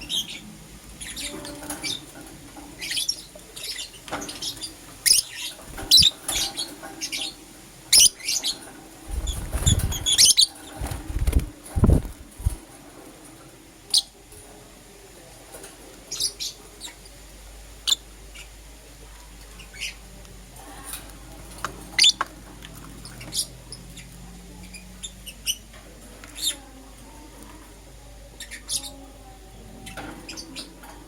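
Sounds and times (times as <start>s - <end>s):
lovebirds chirping: 2.8s - 12.6s.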